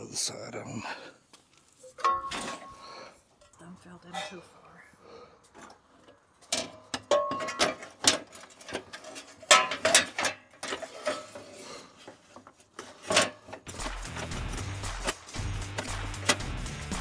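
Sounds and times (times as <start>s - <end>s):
clicks and knocks of parts: 5.5s - 14.3s
background music with steady beat: 13.7s - 17.0s.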